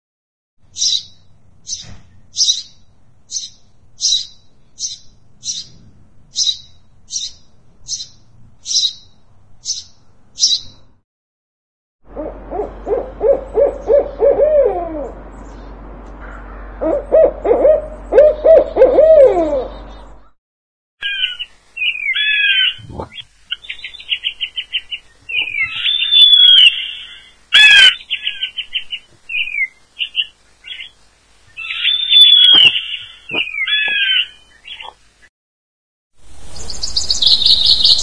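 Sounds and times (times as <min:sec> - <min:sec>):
low hooting bird calls: 0:12.1 - 0:20.4, 0:21.0 - 0:30.9, 0:31.6 - 0:35.0
parrots chattering and whistling: 0:25.4 - 0:28.6, 0:31.6 - 0:34.9
parrot squawk: 0:25.7 - 0:28.4, 0:31.6 - 0:34.9.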